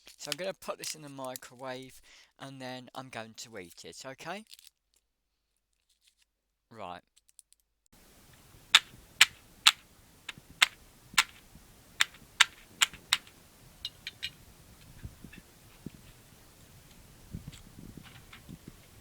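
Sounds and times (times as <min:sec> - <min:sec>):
faint ticks and light knocks: 0:08.0 - 0:19.0
sharp loud clicks: 0:08.0 - 0:19.0.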